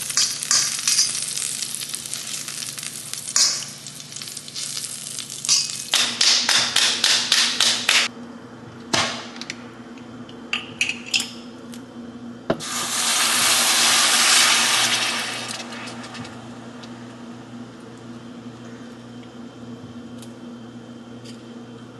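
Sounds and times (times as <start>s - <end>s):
loud steady hiss: 0.0s - 6.0s, 12.6s - 16.8s.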